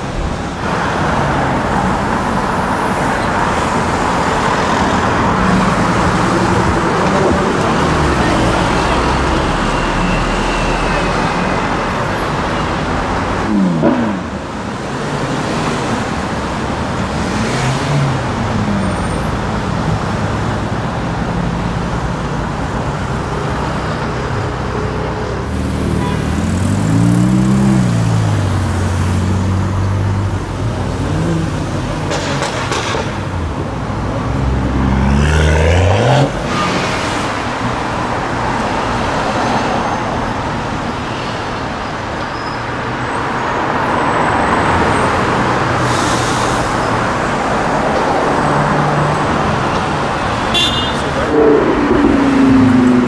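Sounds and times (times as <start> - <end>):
city road traffic: 0.0 - 53.0
car engines revving past: 34.2 - 37.8, 45.1 - 53.0.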